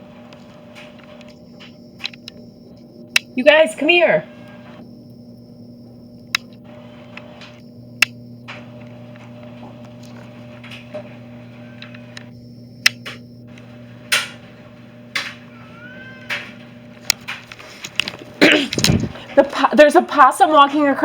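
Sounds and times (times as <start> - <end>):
low electrical hum: 0.0 - 21.0
sharp clicks: 0.4 - 3.4, 6.2 - 11.0, 11.8 - 14.4.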